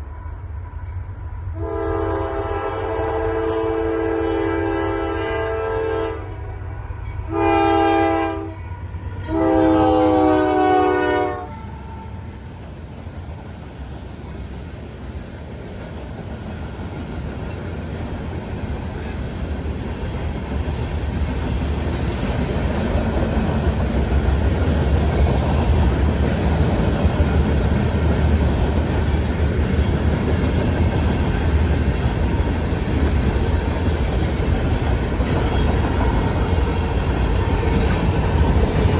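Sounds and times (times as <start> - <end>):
train rumbling past: 0.0 - 38.9
locomotive air horn: 1.5 - 6.4, 7.2 - 12.3
wheels clacking over rail joints: 12.5 - 38.9.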